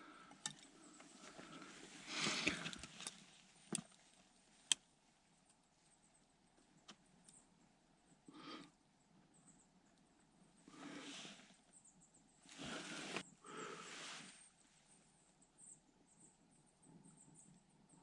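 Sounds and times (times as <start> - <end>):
soft rustling: 12.4 - 14.5.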